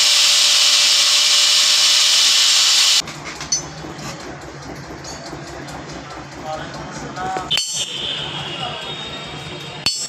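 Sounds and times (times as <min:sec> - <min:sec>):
power tool whining on metal: 0:00.0 - 0:03.0.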